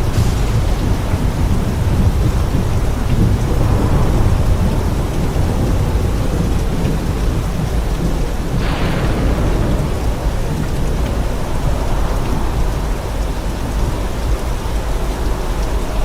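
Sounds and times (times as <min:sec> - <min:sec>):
bright hiss: 0:00.0 - 0:05.1
rumble of thunder: 0:00.0 - 0:16.0
steady rain: 0:00.0 - 0:16.0.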